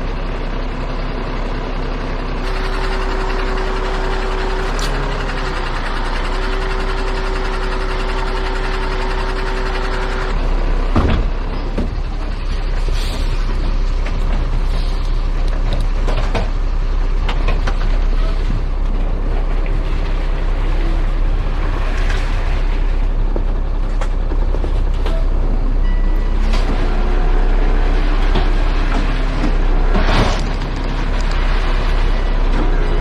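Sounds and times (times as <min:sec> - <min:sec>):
heavy truck engine running: 0:00.0 - 0:33.0.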